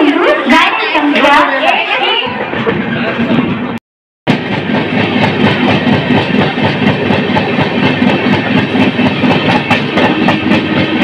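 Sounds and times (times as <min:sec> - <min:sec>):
train coach rumble: 0:02.3 - 0:11.0.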